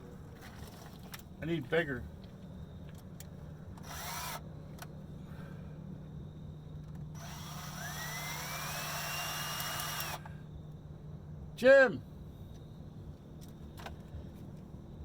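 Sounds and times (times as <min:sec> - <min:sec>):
power drill running: 0:03.8 - 0:04.4, 0:07.2 - 0:10.3.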